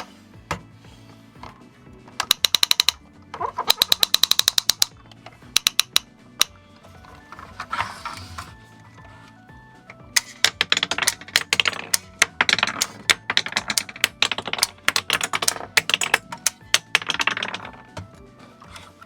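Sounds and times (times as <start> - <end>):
toy truck parts clicking and rattling: 2.2 - 8.5, 10.2 - 19.0.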